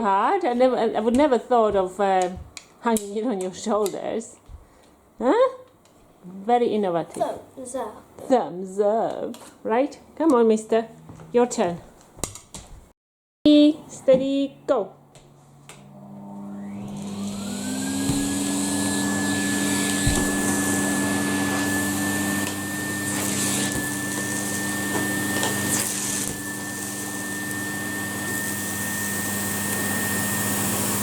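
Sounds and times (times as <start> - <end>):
vacuum cleaner motor whining: 15.5 - 31.0.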